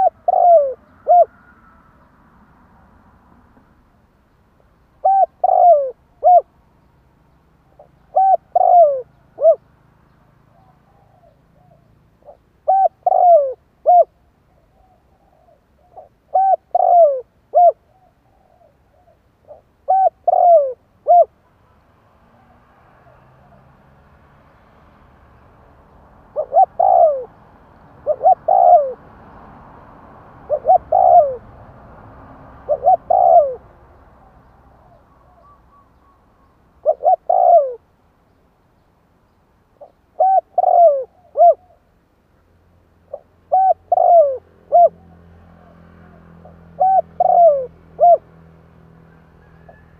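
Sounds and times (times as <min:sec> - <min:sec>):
dove cooing: 0:00.0 - 0:01.8, 0:05.0 - 0:06.5, 0:07.6 - 0:09.7, 0:10.5 - 0:21.4, 0:26.2 - 0:29.1, 0:30.4 - 0:31.6, 0:32.6 - 0:37.9, 0:39.8 - 0:41.9, 0:43.1 - 0:48.3, 0:49.1 - 0:49.9.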